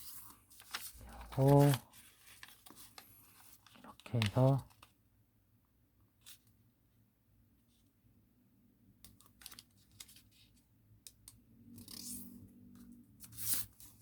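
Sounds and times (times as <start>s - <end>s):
paper crinkling and rustling: 0.0s - 4.9s, 9.2s - 10.6s
paper fold crackle: 0.0s - 4.9s.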